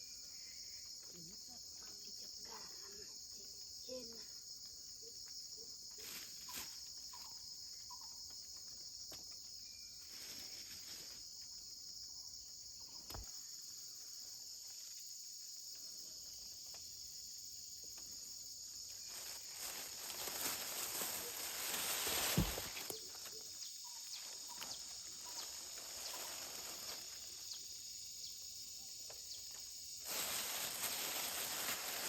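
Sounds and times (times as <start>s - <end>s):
insects chirring: 0.0s - 32.0s
rustling: 18.8s - 23.5s, 24.2s - 27.6s, 30.0s - 32.0s.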